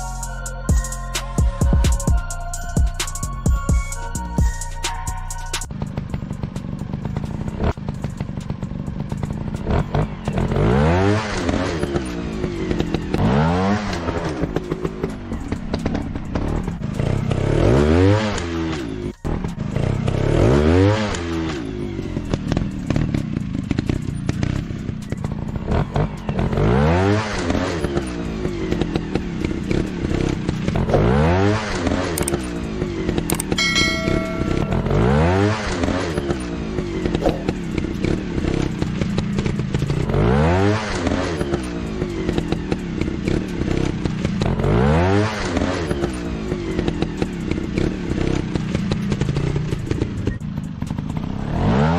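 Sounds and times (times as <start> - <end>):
dirt bike engine revving: 5.7 - 51.9
low engine rumble: 31.8 - 40.1.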